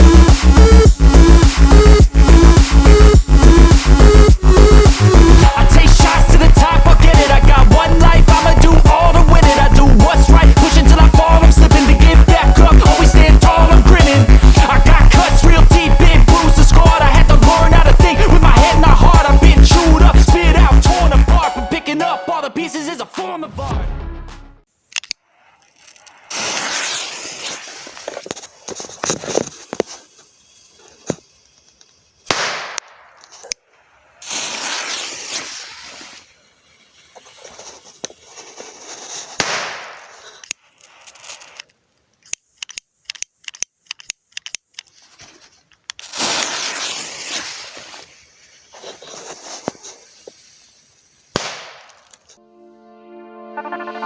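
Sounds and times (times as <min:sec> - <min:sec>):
hissing noise: 0:25.2 - 0:32.3, 0:33.4 - 0:40.3, 0:46.1 - 0:52.4
firecracker bangs: 0:32.3 - 0:33.2, 0:39.4 - 0:40.1, 0:51.3 - 0:52.0
rapid small clicks: 0:40.3 - 0:46.0.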